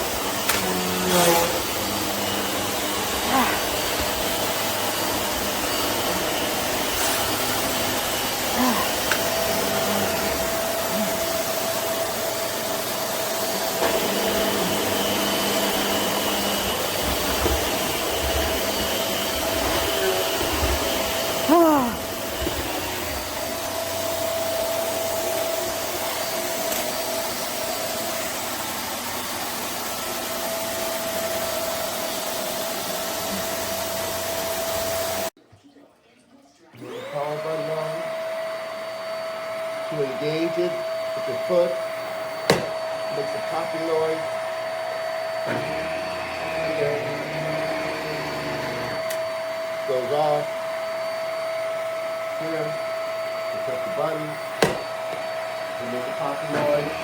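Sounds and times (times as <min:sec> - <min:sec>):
vacuum cleaner motor whine: 0:00.0 - 0:35.3, 0:36.7 - 0:57.0.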